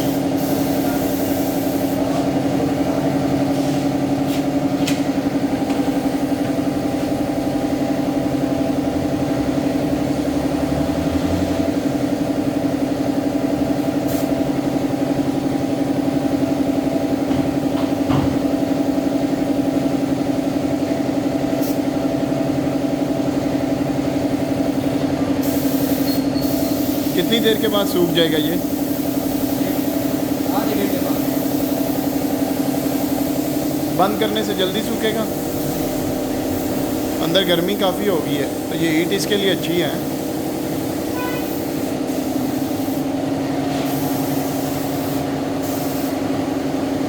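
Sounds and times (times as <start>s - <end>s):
motor-driven machine droning: 33.8s - 40.0s.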